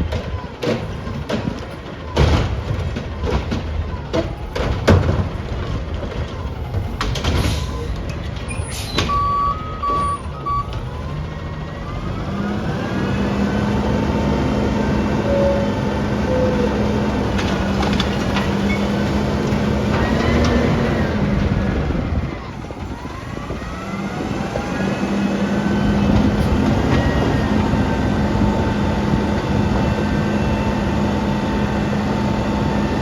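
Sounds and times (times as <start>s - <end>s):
sharp clanks and bangs: 0.0s - 11.0s
truck engine droning: 0.0s - 33.0s
short high beeps: 9.1s - 10.7s.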